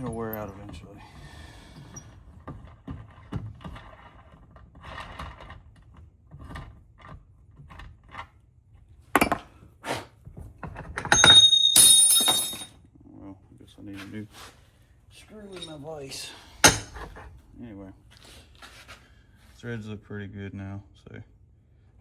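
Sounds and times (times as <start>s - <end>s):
metal knocks: 11.0s - 12.7s, 16.6s - 17.1s
metallic clatter with ringing: 11.0s - 12.7s.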